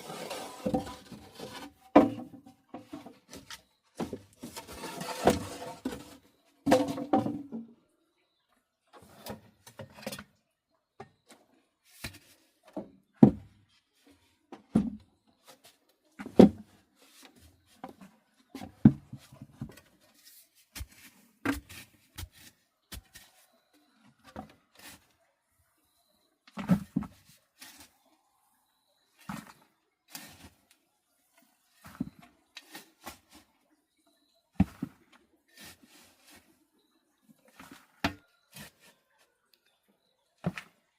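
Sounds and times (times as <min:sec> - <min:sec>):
wood rubbing and scraping: 0:00.0 - 0:07.6.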